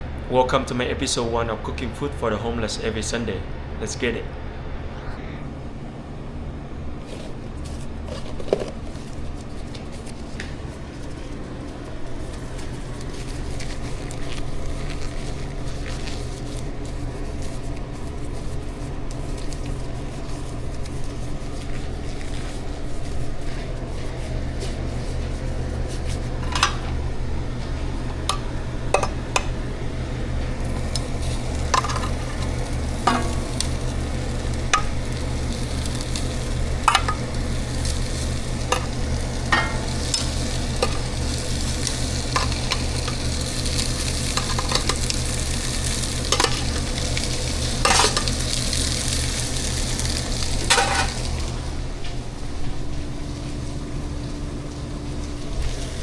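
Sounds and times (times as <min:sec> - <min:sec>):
low hum: 0:03.4 - 0:54.4
food sizzling in a pan: 0:28.1 - 0:51.9
utensil clinking and scraping pan: 0:31.7 - 0:33.9, 0:36.9 - 0:37.3, 0:38.7 - 0:41.1, 0:46.2 - 0:47.0, 0:47.8 - 0:48.4, 0:50.7 - 0:51.2.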